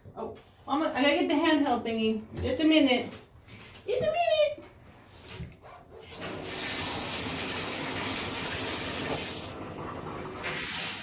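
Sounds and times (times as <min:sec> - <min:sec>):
water running into tub: 0:06.1 - 0:11.0.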